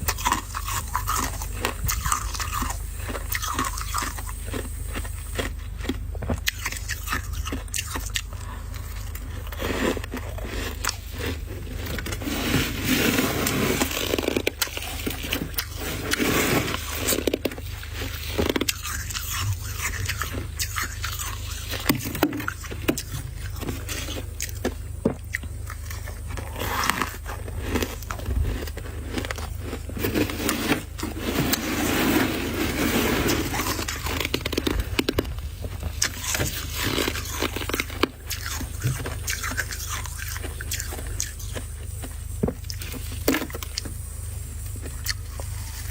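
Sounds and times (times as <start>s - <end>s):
crunching packed frost: 0.0s - 45.9s
frost being scraped: 6.5s - 24.6s, 25.7s - 35.2s, 35.9s - 41.7s.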